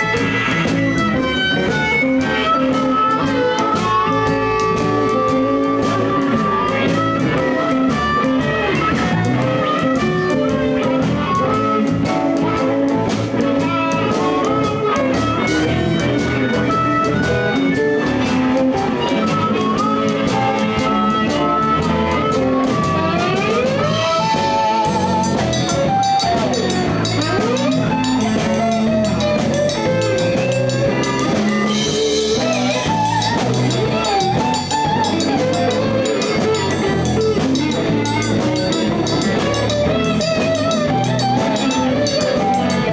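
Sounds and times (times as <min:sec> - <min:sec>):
bass guitar: 0:00.0 - 0:42.9
drum kit: 0:00.0 - 0:42.9
electric guitar: 0:00.0 - 0:42.9.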